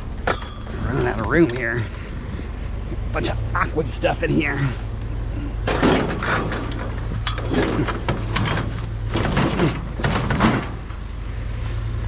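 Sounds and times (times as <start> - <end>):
steady low hum: 0.0 - 12.0
scrap scraping and clattering: 5.6 - 11.0.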